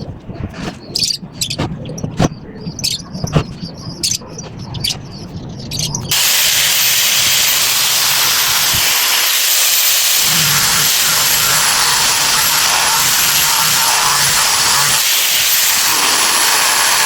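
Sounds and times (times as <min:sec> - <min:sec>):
loud steady hiss: 0:06.1 - 0:17.0.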